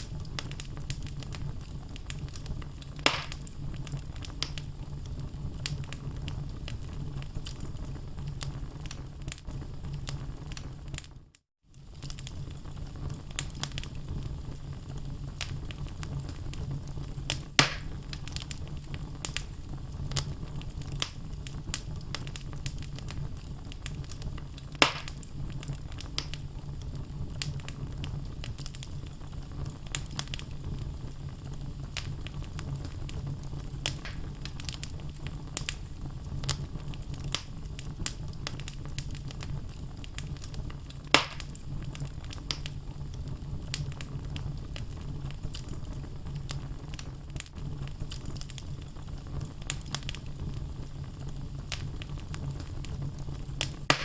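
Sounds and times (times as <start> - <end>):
fire burning with crackles: 0.0 - 54.0
loud pops from logs: 3.0 - 3.5, 17.6 - 18.0, 24.8 - 25.2, 33.9 - 34.3, 41.2 - 41.5.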